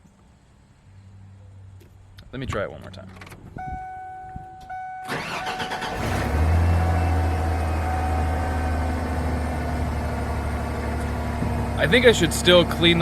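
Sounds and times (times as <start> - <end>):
engine idling: 5.0 - 13.0
starter motor cranking: 5.1 - 6.5.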